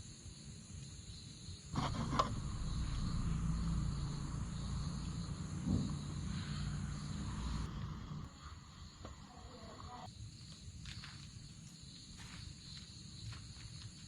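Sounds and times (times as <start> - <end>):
insects chirring: 0.0 - 14.0
low rumble: 1.8 - 8.4.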